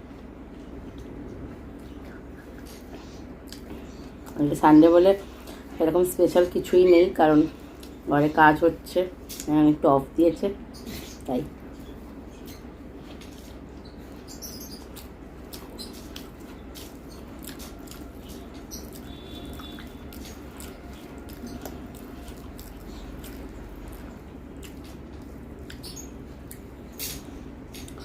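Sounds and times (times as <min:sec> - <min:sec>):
person chewing food: 0:00.1 - 0:04.4, 0:07.6 - 0:08.0, 0:11.2 - 0:28.0.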